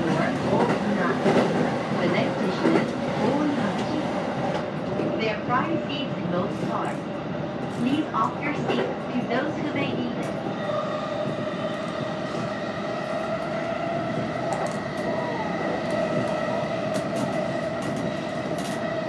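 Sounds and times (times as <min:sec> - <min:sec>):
train wheels rumbling on track: 0:00.0 - 0:19.0
train whine: 0:08.6 - 0:19.0.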